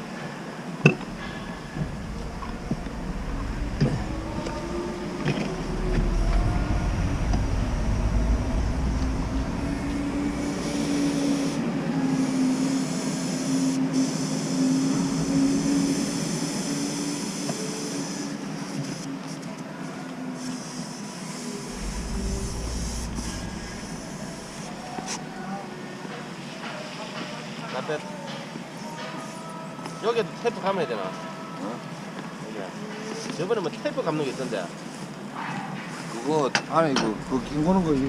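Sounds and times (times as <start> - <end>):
excavator diesel engine running: 1.0 - 11.5, 21.7 - 25.3, 37.1 - 38.0.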